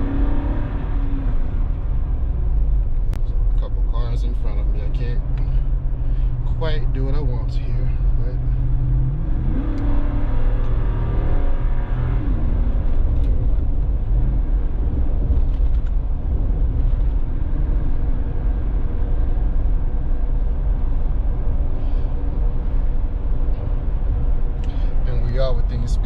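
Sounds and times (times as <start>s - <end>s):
car engine and exhaust running: 0.0s - 26.0s
low road rumble: 0.0s - 26.0s.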